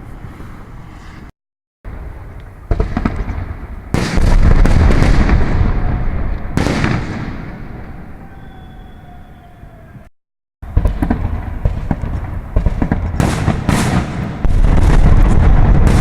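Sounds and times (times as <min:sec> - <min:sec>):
fireworks bursting with rumbling boom: 0:01.9 - 0:08.8, 0:10.6 - 0:16.0.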